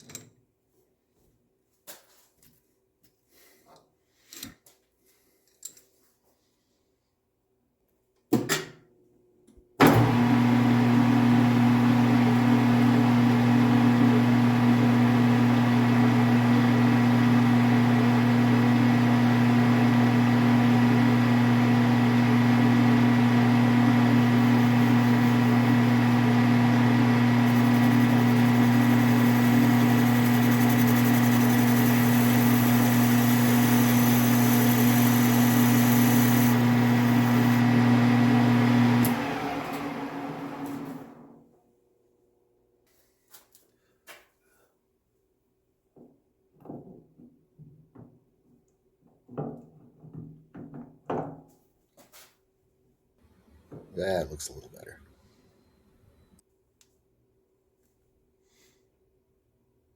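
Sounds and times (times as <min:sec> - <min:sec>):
lathe humming: 0:10.0 - 0:41.3.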